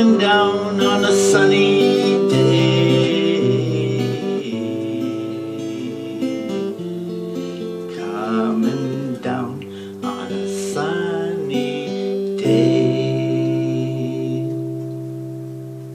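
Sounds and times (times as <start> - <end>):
acoustic guitar strumming: 0.0 - 15.9.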